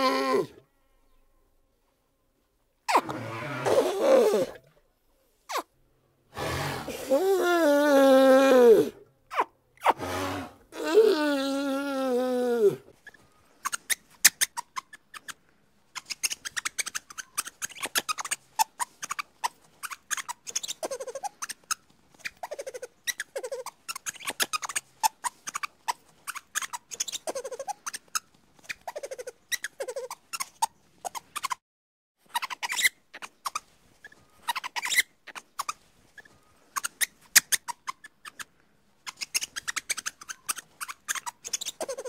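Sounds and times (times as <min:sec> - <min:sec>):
small animal squeaking and chittering: 0:02.9 - 0:04.5, 0:05.5 - 0:05.7, 0:13.0 - 0:31.6, 0:32.2 - 0:42.0.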